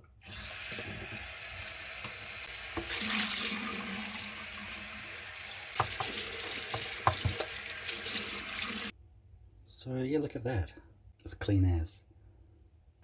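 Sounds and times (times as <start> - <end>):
tap water running into pot: 0.2 - 8.9.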